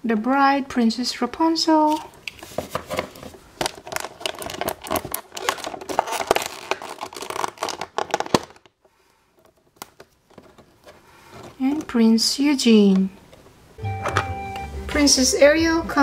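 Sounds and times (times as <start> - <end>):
hands handling plastic toys: 1.8 - 14.3.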